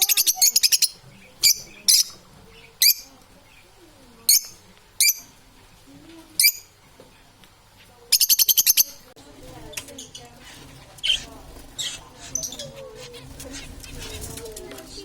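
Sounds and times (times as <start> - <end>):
parrots chirping: 0.0 - 3.7, 4.3 - 5.3, 6.4 - 6.7, 8.1 - 9.1, 10.0 - 14.3.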